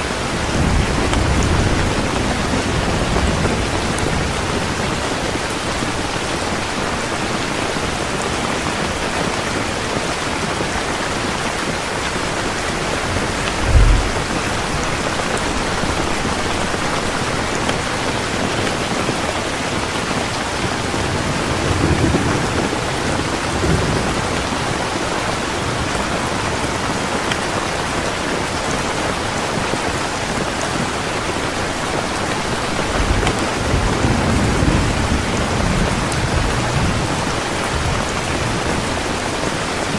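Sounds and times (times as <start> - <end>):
thunder rumbling: 0.0 - 6.2, 12.1 - 18.5, 20.6 - 24.6
heavy rain: 0.0 - 39.9.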